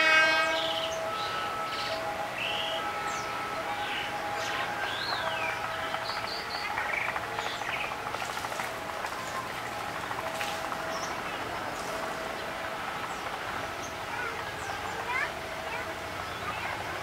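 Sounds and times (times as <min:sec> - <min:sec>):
faint steady drone: 0:00.0 - 0:17.0.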